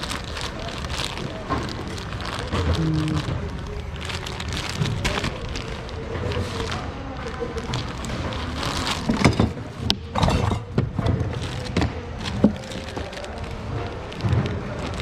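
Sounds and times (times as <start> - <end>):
objects knocking and clattering: 8.1 - 13.1.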